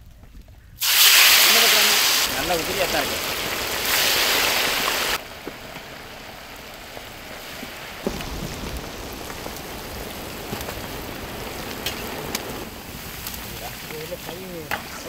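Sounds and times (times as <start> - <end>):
small crackles: 0.0 - 15.0
chicken sizzling in oil: 0.8 - 5.3.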